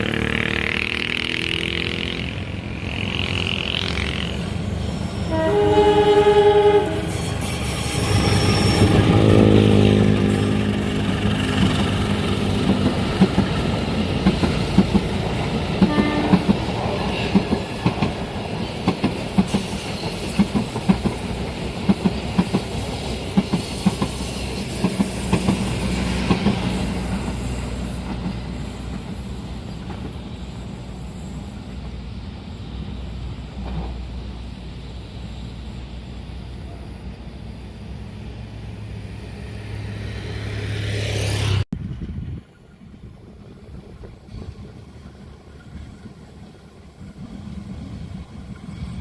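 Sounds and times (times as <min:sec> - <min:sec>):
train rumble: 0:00.0 - 0:49.0
train wheels clacking over joints: 0:07.1 - 0:30.6.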